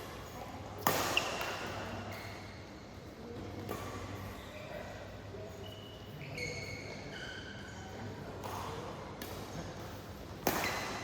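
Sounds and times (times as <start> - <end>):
shoes squeaking on court floor: 4.3 - 8.1.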